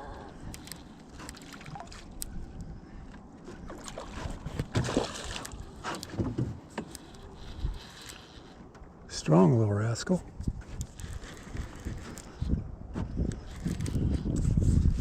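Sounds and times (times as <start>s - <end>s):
knocks and clunks in a boat: 3.1s - 7.6s.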